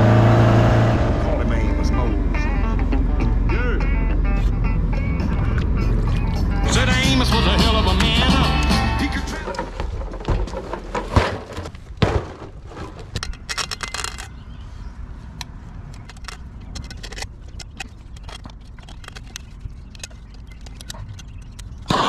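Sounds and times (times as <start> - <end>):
low steady rumble: 0.0 - 8.2
clicks and rattling knocks: 8.6 - 14.4, 15.9 - 21.8.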